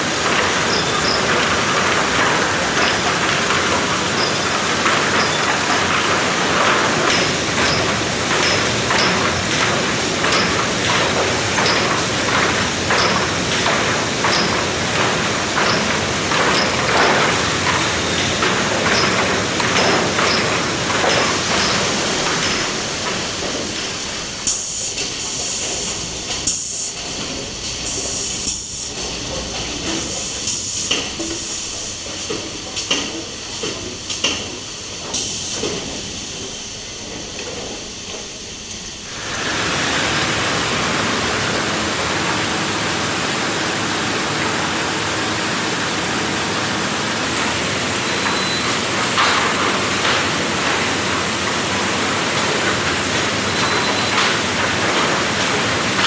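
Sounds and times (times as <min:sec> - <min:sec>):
knocks and clatter: 0:00.0 - 0:24.0, 0:40.6 - 0:56.0
wood-processing machinery hiss: 0:00.0 - 0:56.0.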